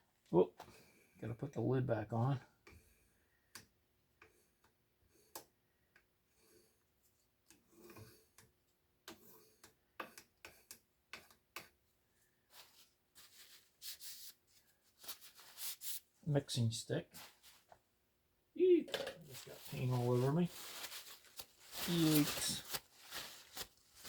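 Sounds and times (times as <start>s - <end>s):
clicks of handling paint can lid: 18.9s - 19.4s.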